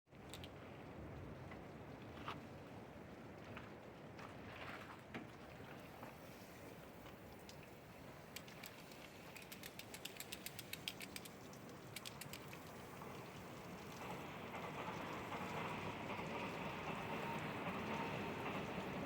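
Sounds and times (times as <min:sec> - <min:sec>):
water spray pattering on car: 0:05.9 - 0:18.7
rapid even ticks: 0:08.3 - 0:15.7.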